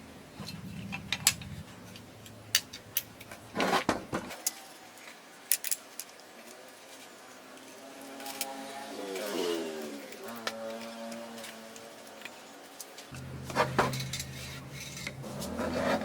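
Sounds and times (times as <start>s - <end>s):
low hum: 13.1s - 16.0s
rattling scrape: 13.1s - 16.0s
metal tools clinking: 13.2s - 16.0s.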